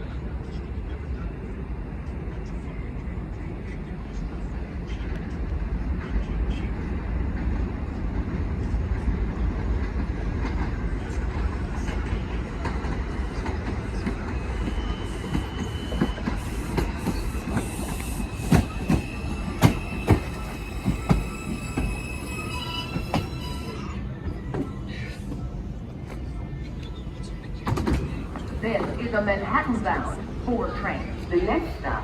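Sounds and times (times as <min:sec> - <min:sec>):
subway train rumbling: 0:00.0 - 0:32.0
high-pitched wheel and brake squeal: 0:14.5 - 0:24.1.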